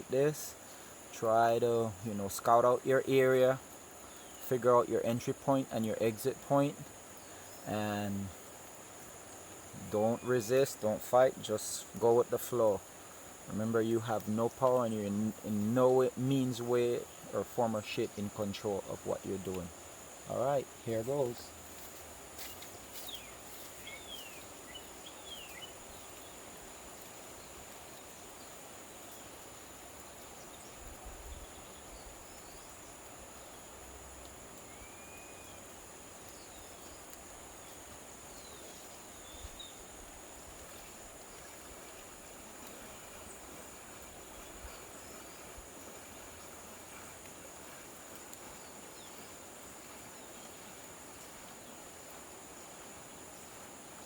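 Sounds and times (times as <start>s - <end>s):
insects droning: 0.0s - 54.0s
river rushing: 0.0s - 54.0s
bird chirps: 22.4s - 26.4s.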